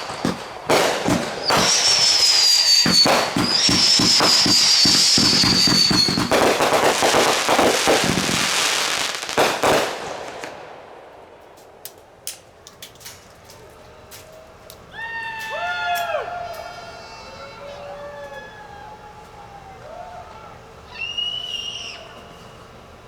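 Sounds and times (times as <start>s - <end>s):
fireworks high whistles: 0.0s - 10.6s, 20.8s - 23.0s
fireworks bangs and crackle: 0.0s - 12.4s.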